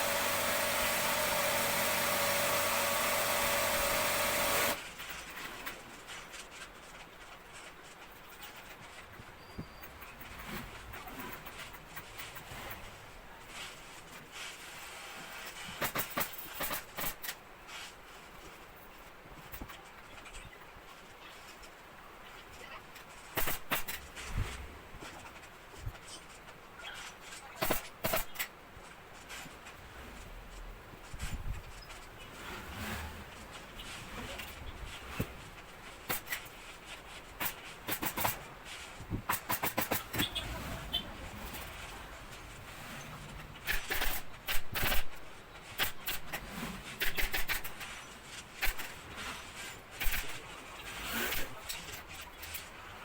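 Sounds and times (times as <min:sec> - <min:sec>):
upholstery scrapes and rustles: 0:04.7 - 0:18.8, 0:28.8 - 0:39.3, 0:40.0 - 0:53.0.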